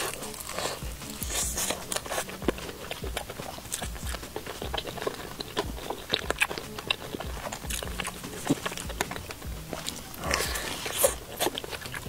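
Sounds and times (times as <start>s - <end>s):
person chewing crunchy food: 0.0s - 12.0s
wet mouth sounds: 0.0s - 12.0s.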